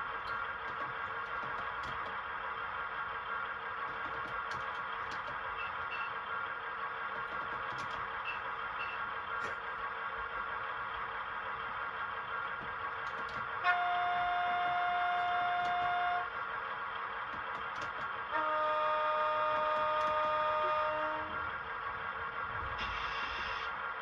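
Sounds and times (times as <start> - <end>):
steady running hum: 0.0 - 22.8
model locomotive horn blasts: 13.1 - 16.4, 17.3 - 21.5.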